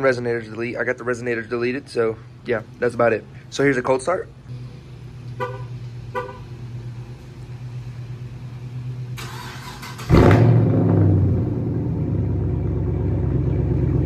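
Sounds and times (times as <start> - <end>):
loud car engine idling: 3.2 - 14.0
starter motor cranking: 9.2 - 10.4.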